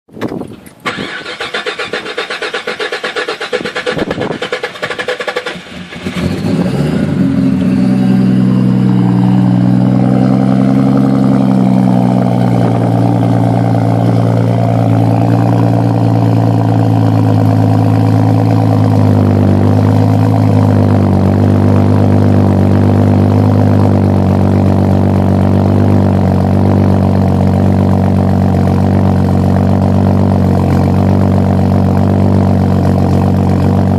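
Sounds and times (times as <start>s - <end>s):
starter motor cranking: 0.8s - 6.4s
engine idling: 0.8s - 33.9s.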